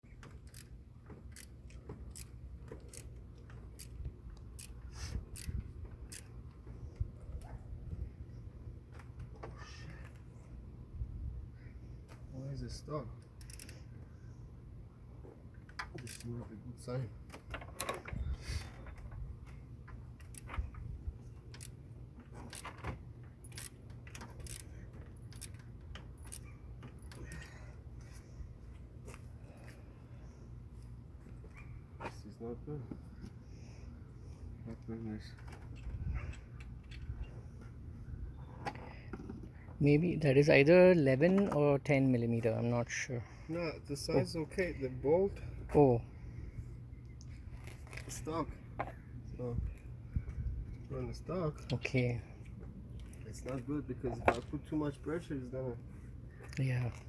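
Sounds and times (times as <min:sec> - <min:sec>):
wrench metallic clicks: 0:00.4 - 0:03.2, 0:13.2 - 0:13.8, 0:15.9 - 0:16.3, 0:23.4 - 0:24.7, 0:25.3 - 0:26.5
socket ratchet clicking: 0:13.2 - 0:13.8, 0:23.4 - 0:24.7.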